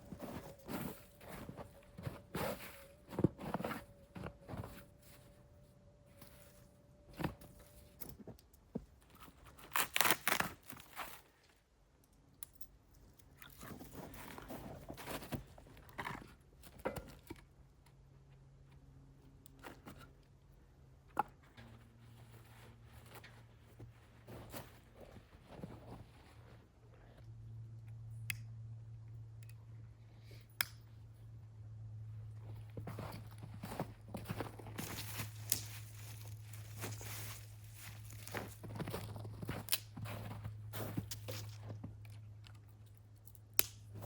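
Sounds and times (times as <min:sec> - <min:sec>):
skin and feathers tearing: 0:09.7 - 0:10.7.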